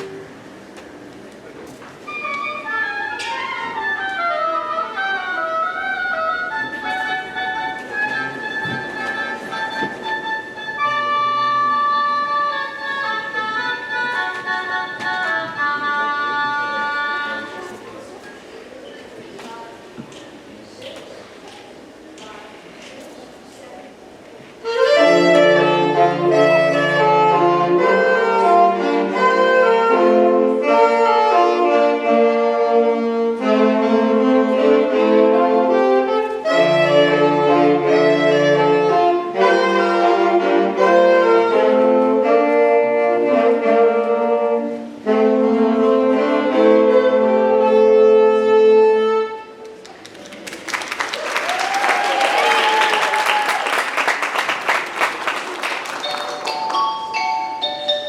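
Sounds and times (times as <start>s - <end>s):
wind ensemble playing chords: 2.1s - 18.1s, 24.6s - 49.6s
applause: 49.8s - 56.9s.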